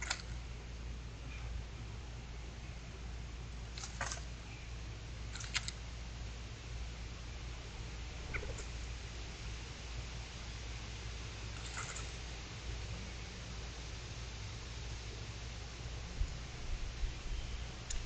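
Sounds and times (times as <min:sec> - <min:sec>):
steady low hum: 0:00.0 - 0:18.0
animal chirps and clicks: 0:08.3 - 0:08.7.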